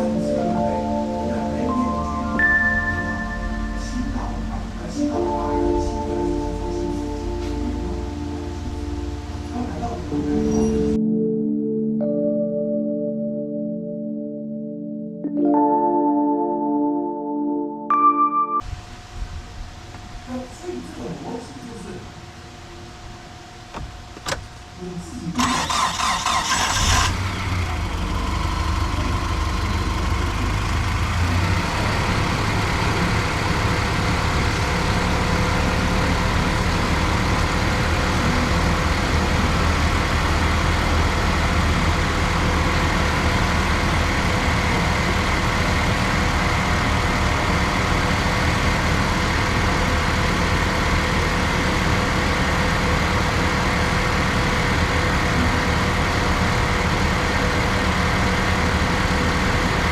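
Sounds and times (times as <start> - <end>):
truck engine idling: 0.0 - 11.0, 25.4 - 59.9.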